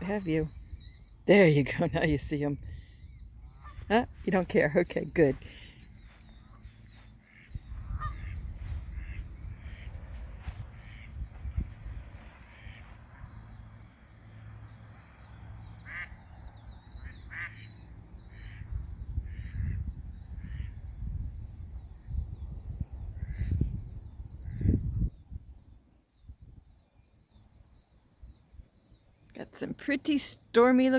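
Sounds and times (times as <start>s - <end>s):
geese honking: 6.4s - 11.2s, 12.3s - 13.0s, 15.8s - 16.2s, 17.0s - 17.7s.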